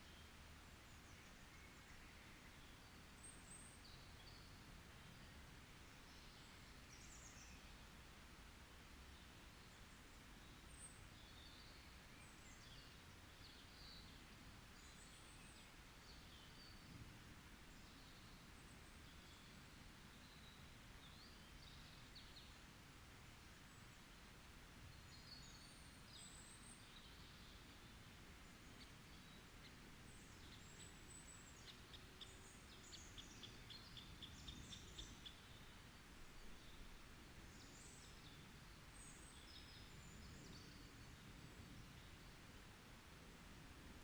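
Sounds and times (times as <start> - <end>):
low steady background hiss: 0.0 - 44.0.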